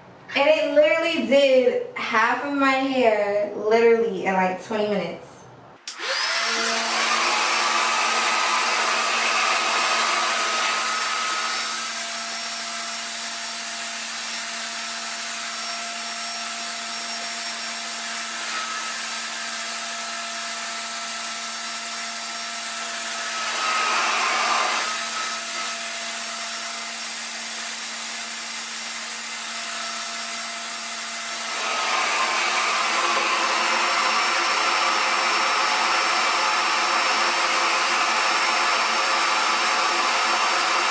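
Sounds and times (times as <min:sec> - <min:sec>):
hair dryer running: 0:05.8 - 0:40.9.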